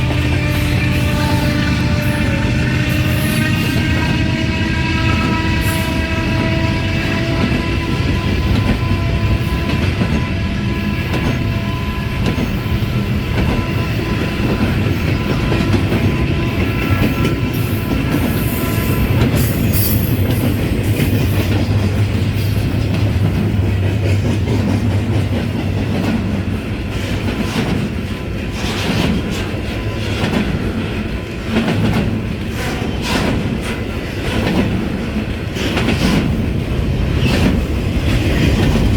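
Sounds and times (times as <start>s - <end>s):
locomotive horn: 0.0s - 20.3s
freight train rumbling past: 0.0s - 38.9s
wheels clacking over rail joints: 12.2s - 38.9s.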